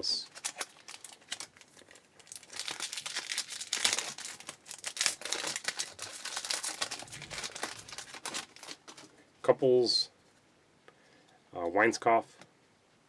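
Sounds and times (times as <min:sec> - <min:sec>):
foil wrapper crinkling: 0:00.1 - 0:09.1.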